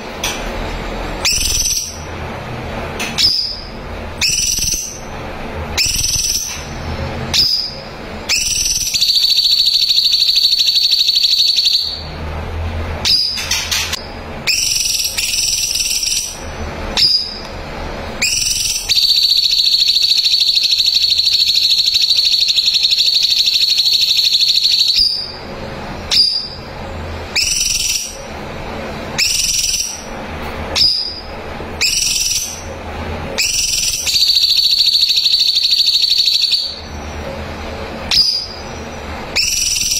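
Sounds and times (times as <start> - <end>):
bird singing high trills: 1.2 - 2.1, 3.2 - 5.1, 5.8 - 6.7, 7.3 - 12.1, 13.0 - 13.8, 14.4 - 17.4, 18.2 - 25.4, 26.1 - 26.7, 27.3 - 28.3, 29.2 - 32.8, 33.4 - 37.2, 38.1 - 39.9.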